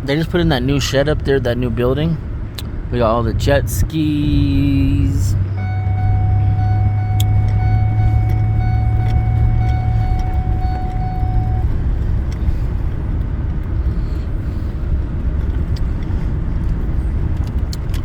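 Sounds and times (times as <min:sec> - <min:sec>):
vehicle engine and road rumble: 0:00.0 - 0:18.0
thin steady tone: 0:05.6 - 0:11.9.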